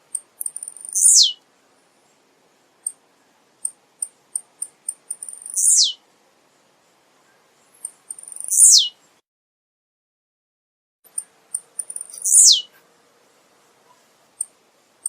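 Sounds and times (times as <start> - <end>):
bird singing high ticks: 0.1 - 1.4, 3.6 - 6.0, 7.7 - 9.0, 11.1 - 12.8, 14.3 - 14.6.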